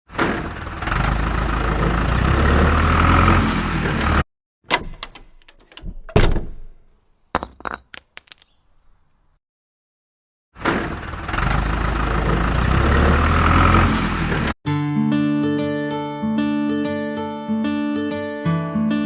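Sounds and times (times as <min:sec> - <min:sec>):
sharp knocks and clicks: 0:04.7 - 0:08.6.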